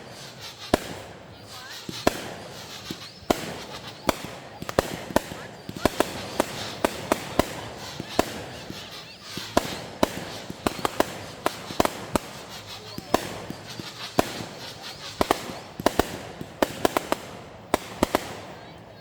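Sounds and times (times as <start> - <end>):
fireworks bangs and cracks: 0.0 - 19.0
fireworks crackling: 0.0 - 19.0.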